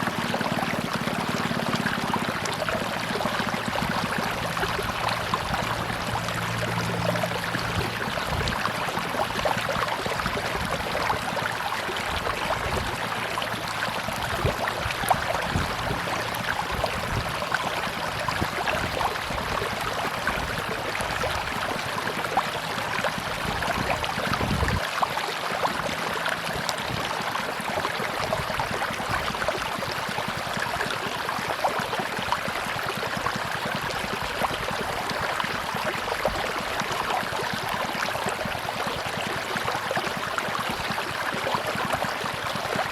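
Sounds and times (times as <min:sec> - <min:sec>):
river water rushing and babbling: 0:00.0 - 0:42.9
small water splashes: 0:00.0 - 0:42.9.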